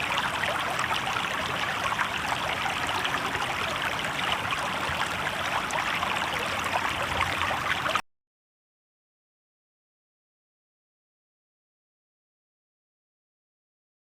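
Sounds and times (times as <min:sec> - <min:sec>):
river water babbling over stones: 0:00.0 - 0:08.0.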